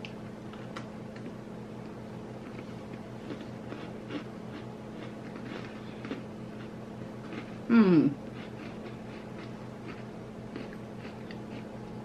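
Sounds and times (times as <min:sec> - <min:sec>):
low electrical hum: 0:00.0 - 0:12.0
people chewing cookies: 0:00.5 - 0:12.0.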